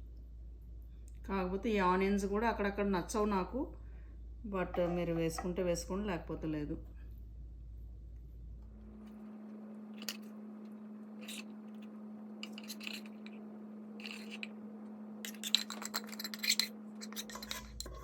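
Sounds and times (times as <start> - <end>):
low hum: 0.0 - 18.0
metal spoon scraping cooking pot: 11.2 - 11.5, 12.4 - 13.3, 14.0 - 14.5, 15.2 - 18.0.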